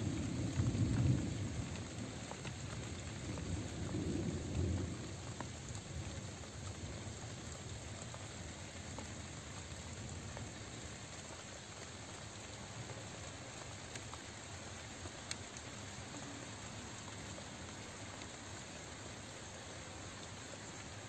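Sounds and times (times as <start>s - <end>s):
steady rainfall: 0.0s - 21.0s
thunder rumble: 2.9s - 6.1s.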